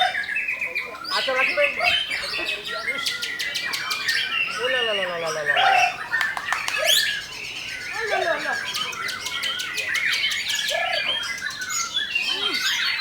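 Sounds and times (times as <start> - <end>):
birds singing in chorus: 0.0 - 13.0.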